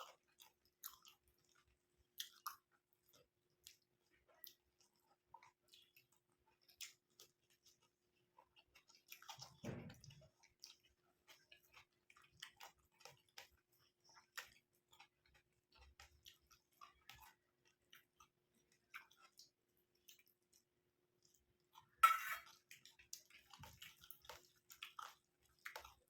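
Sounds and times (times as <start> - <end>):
wet mouth clicks and smacks: 0.0 - 7.8, 21.3 - 26.0
close-miked chewing: 0.0 - 26.0.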